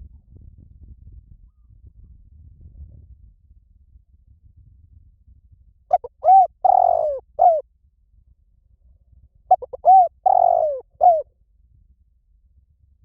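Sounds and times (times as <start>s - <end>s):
dove cooing: 5.9s - 7.6s, 9.5s - 11.2s.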